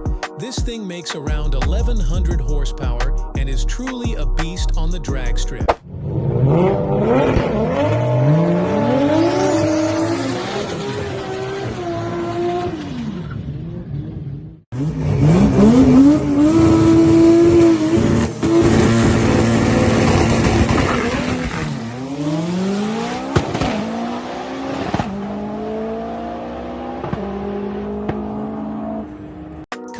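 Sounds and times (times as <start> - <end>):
turbocharged engine accelerating: 5.8 - 29.6.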